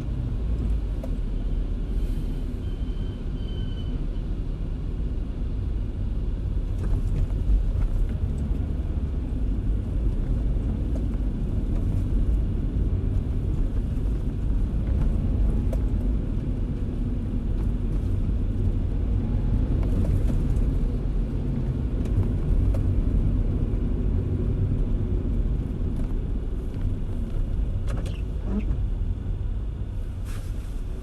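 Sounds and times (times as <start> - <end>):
road and engine rumble: 0.0 - 31.0.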